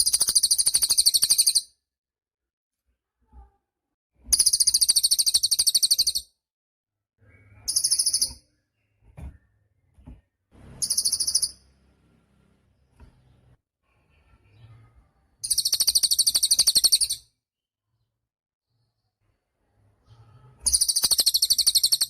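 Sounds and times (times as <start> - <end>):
songbird trilling: 10.8 - 11.6, 15.4 - 17.2, 20.7 - 22.0.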